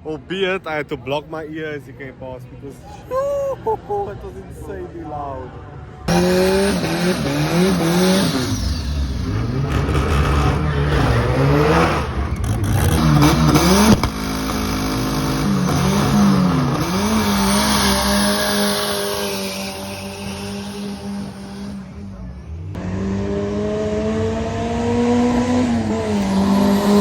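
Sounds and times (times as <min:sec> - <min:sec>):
drag racing car engines revving: 0:06.0 - 0:27.0.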